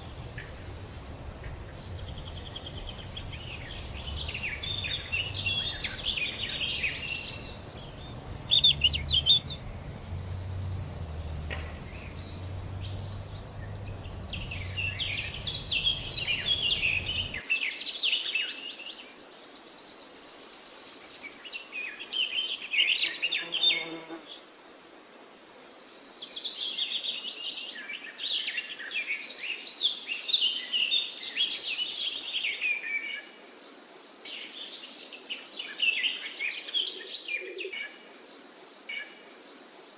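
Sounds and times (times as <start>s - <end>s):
low rumble: 0.0s - 17.4s
small birds chirping: 0.0s - 17.4s
high buzzing trills: 0.3s - 17.4s.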